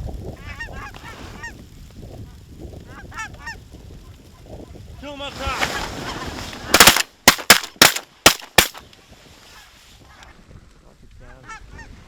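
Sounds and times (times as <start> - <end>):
shotgun blasts: 6.7 - 8.8.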